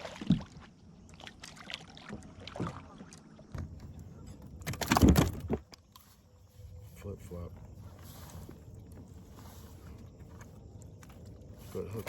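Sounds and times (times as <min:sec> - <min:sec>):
knocks and rattles on kayak: 0:03.5 - 0:05.8.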